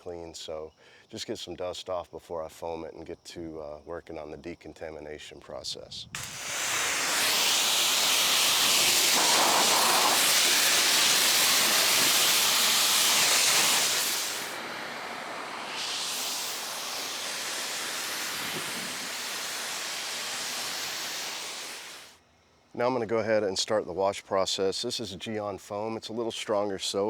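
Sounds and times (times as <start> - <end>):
pressure washer spray hissing: 6.2 - 22.2.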